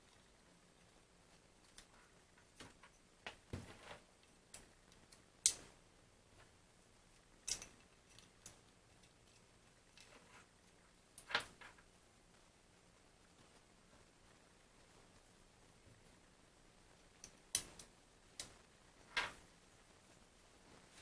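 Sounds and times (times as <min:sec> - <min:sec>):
small parts and tools clicking: 0:07.2 - 0:11.9, 0:17.1 - 0:19.4.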